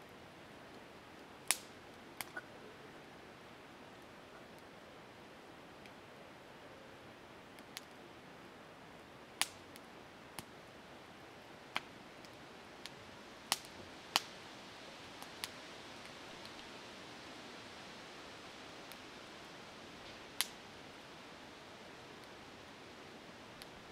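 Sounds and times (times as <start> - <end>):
campfire crackling: 0.0 - 23.9
faint steady hiss: 0.0 - 23.9.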